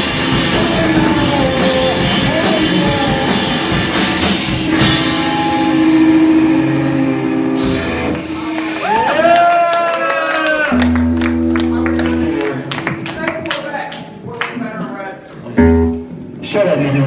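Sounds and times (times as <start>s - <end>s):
drums and cymbals: 0.0s - 9.3s
guitar: 0.0s - 9.7s, 10.6s - 13.4s, 15.6s - 17.0s
live rock band playing: 0.0s - 9.7s, 10.7s - 13.2s.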